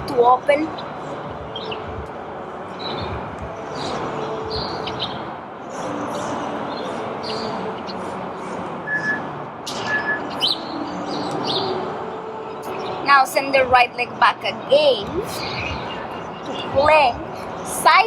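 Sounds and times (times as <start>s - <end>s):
steady background noise: 0.0s - 18.0s
small birds chirping: 15.3s - 17.4s.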